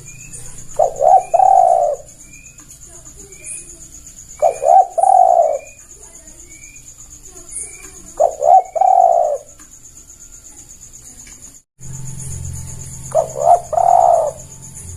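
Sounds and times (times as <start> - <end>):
dove cooing: 0.0 - 6.6, 7.3 - 9.6, 13.0 - 14.6.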